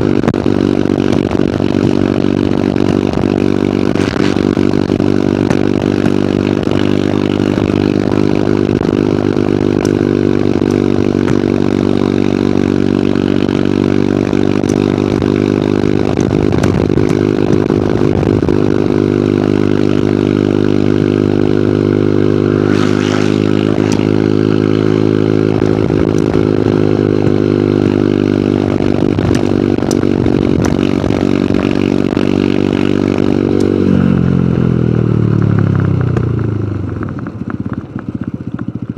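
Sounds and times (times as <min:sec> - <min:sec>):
motorcycle engine running: 0:00.0 - 0:38.9
wind rushing: 0:22.4 - 0:26.5.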